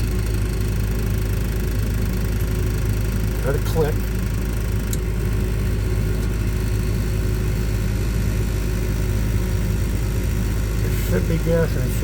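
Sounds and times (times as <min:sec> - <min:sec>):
furnace fan humming: 0:00.0 - 0:12.0.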